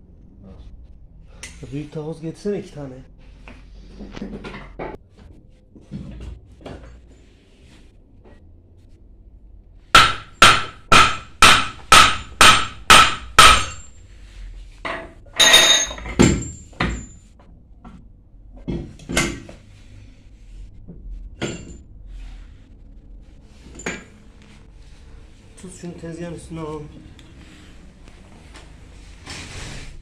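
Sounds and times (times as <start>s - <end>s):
hammer striking metal: 10.0s - 13.9s
metal clanks and knocks: 14.8s - 19.6s, 21.3s - 21.9s, 23.6s - 24.2s.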